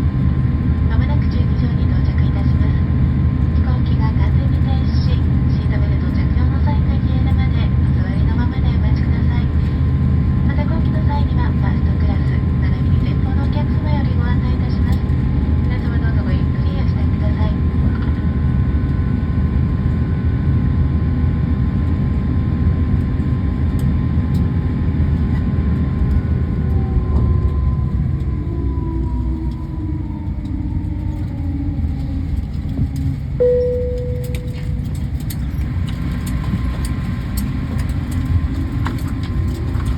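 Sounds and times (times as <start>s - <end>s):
jet engines rumbling: 0.0s - 39.9s
cabin chime: 33.4s - 34.8s.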